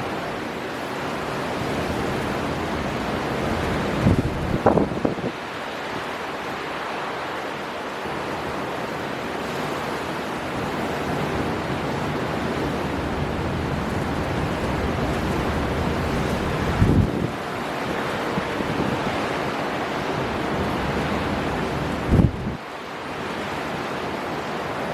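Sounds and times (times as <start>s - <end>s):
sea surf rushing: 0.0s - 24.9s
storm wind blowing: 1.1s - 6.6s, 10.5s - 22.6s.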